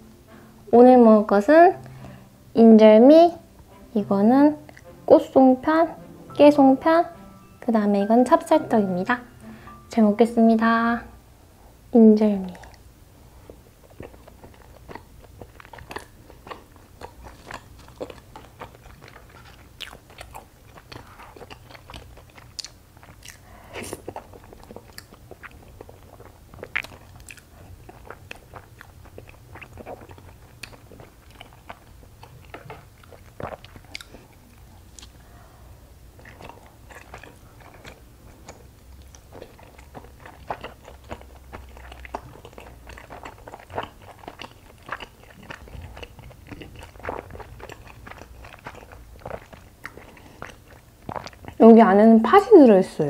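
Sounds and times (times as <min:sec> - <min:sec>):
person chewing sticky food: 0:04.6 - 0:05.1, 0:12.2 - 0:51.7
wet mouth clicks and smacks: 0:26.6 - 0:27.5, 0:28.1 - 0:35.2.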